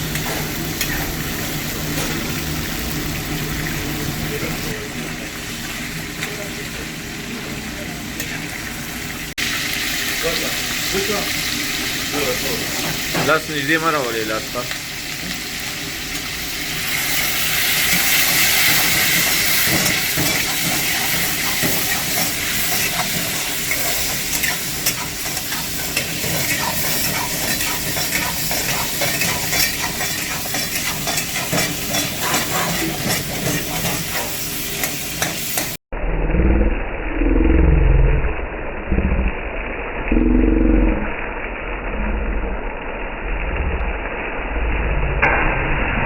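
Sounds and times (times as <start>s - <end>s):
chicken sizzling in a pan: 0.0s - 35.8s.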